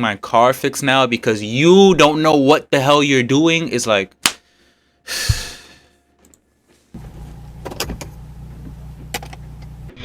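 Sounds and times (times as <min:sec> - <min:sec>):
car engine and road rumble: 0:07.0 - 0:10.0.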